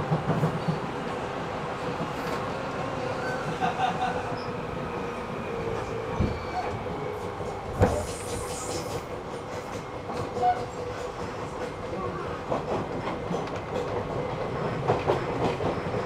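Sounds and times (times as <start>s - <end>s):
brief hiss: 7.8s - 9.1s.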